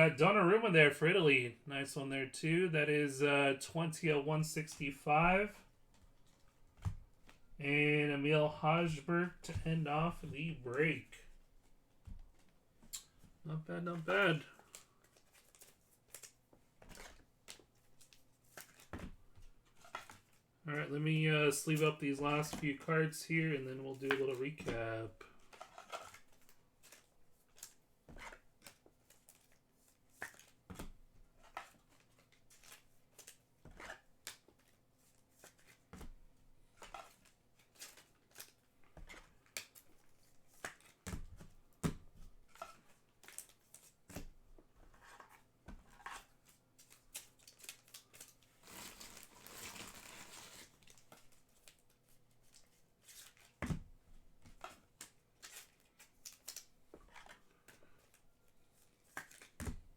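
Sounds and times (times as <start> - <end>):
plastic sleeves rustling: 4.1 - 59.9
cards clicking and tapping: 25.5 - 31.0, 36.7 - 48.3, 59.0 - 59.8.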